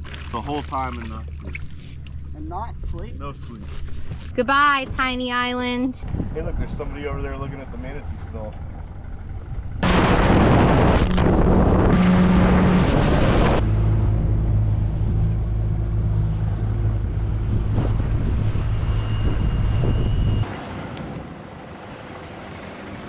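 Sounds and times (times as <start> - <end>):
motorboat engine running: 0.0 - 23.0
wind rush on microphone: 5.9 - 7.5, 9.1 - 13.6, 16.8 - 21.8.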